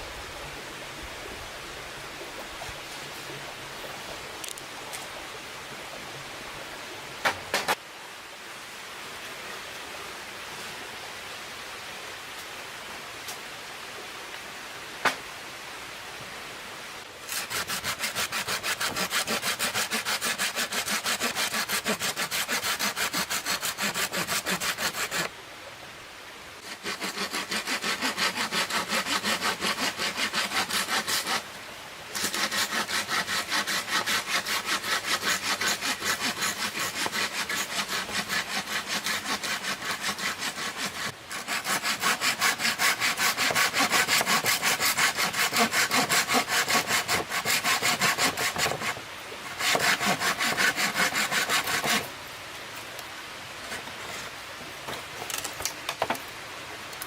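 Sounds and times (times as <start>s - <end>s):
soft hiss: 0.0s - 17.9s, 51.4s - 57.0s
hand saw cutting wood: 7.2s - 7.8s, 17.2s - 25.3s, 26.6s - 31.5s, 32.1s - 52.1s.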